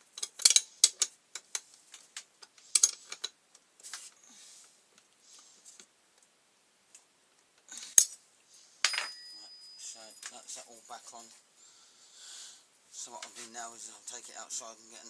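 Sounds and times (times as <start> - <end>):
metallic clicks of spanner: 0.2 - 1.6, 2.7 - 3.3.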